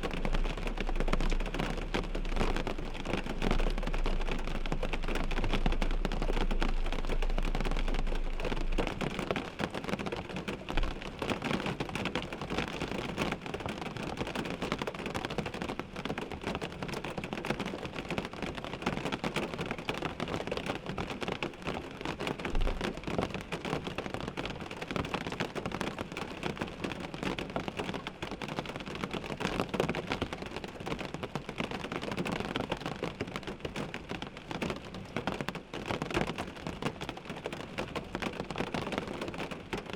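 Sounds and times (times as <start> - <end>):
low rumble: 0.0 - 9.6
rain on car windshield: 0.0 - 39.9.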